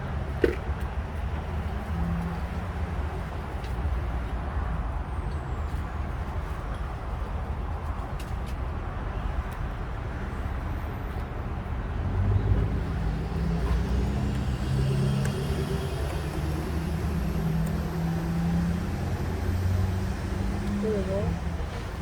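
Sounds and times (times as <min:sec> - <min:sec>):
vehicle engine rumbling: 0:11.1 - 0:22.0.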